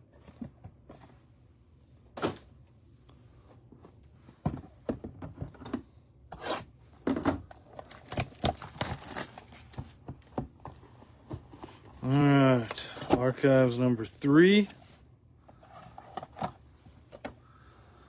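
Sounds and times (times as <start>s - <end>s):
trading cards and packaging handled: 7.6s - 15.0s.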